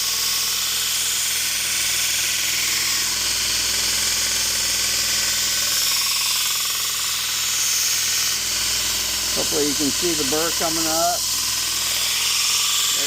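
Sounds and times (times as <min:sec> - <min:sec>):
blade grinding on belt grinder: 0:00.0 - 0:13.0
grinder motor hum: 0:00.0 - 0:13.0.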